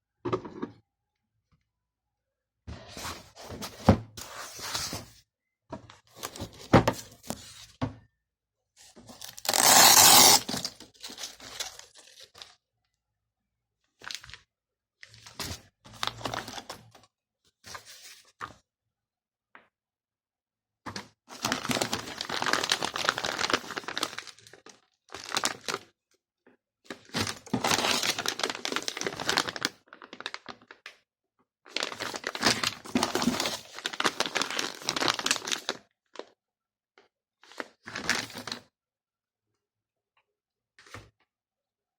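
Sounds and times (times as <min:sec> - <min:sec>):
plastic packaging crinkling: 0:09.2 - 0:12.6, 0:21.4 - 0:25.8, 0:27.3 - 0:30.7, 0:31.8 - 0:35.8.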